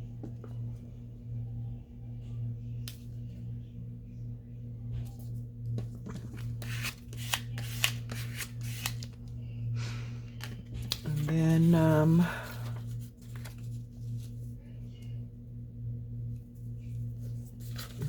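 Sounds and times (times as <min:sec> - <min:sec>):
steady low hum: 0:00.0 - 0:18.0
paper rustling and clicking: 0:12.5 - 0:13.8.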